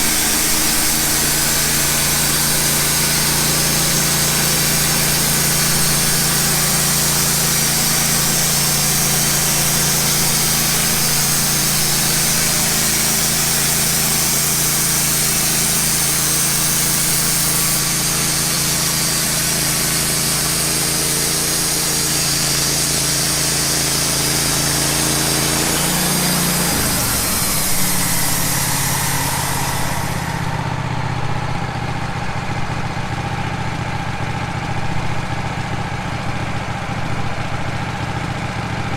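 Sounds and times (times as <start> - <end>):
band blade hissing through wood: 0.0 - 30.9
sawmill engine running: 0.0 - 38.9.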